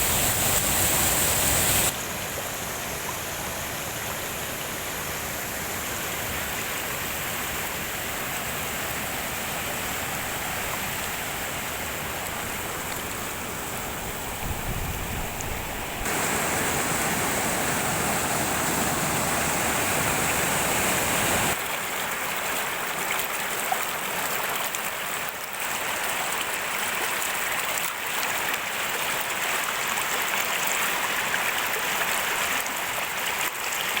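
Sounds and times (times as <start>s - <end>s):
heavy rain falling: 0.0s - 1.9s, 16.0s - 21.6s.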